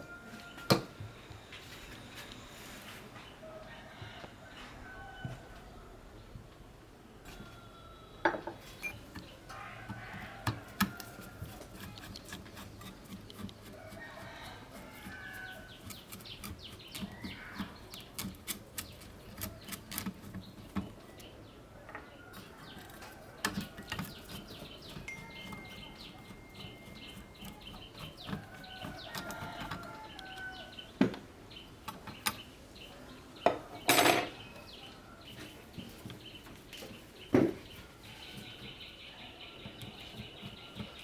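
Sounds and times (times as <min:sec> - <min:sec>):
chickens clucking: 0:20.9 - 0:31.8.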